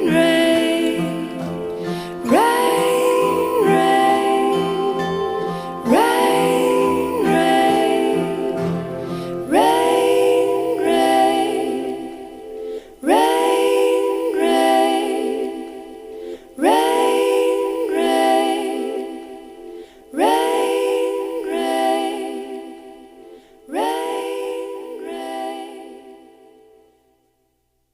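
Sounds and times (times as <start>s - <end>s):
wordless voices singing chords: 0.0s - 27.4s.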